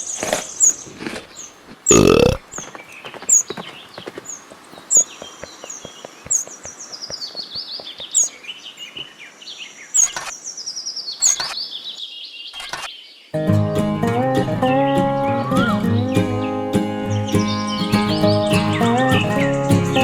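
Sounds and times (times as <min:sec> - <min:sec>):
birds chirping: 0:00.0 - 0:13.4, 0:14.1 - 0:20.0
acoustic guitar music: 0:13.4 - 0:20.0.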